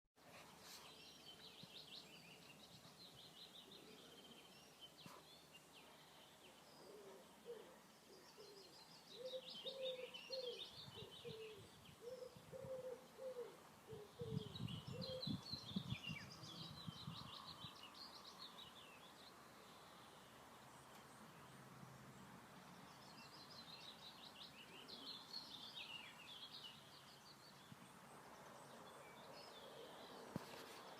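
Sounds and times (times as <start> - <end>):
songbirds twittering: 0.2 - 30.9
lower bird call: 6.8 - 17.8.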